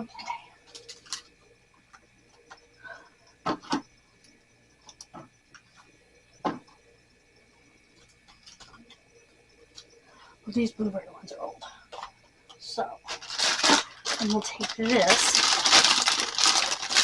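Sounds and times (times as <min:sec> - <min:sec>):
frozen food packages knocking: 0:13.2 - 0:17.0.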